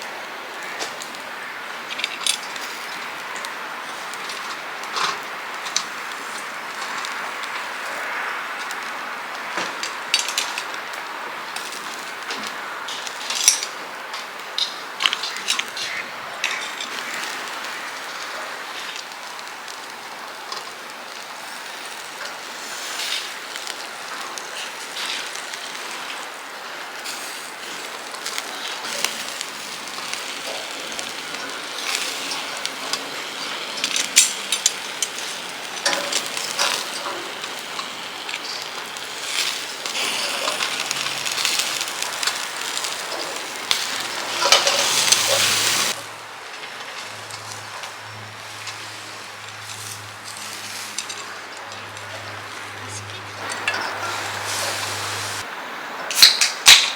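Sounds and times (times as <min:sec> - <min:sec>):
cooking utensils clicking: 0:00.5 - 0:11.0, 0:11.6 - 0:26.3, 0:27.0 - 0:46.0, 0:50.9 - 0:55.4, 0:56.1 - 0:56.9
food sizzling in a pan: 0:15.3 - 0:46.0, 0:53.4 - 0:55.5.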